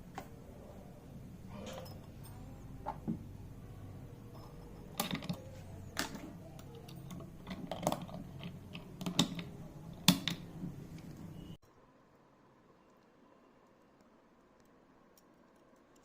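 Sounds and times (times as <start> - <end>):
metal tools clicking and knocking: 4.3 - 10.5.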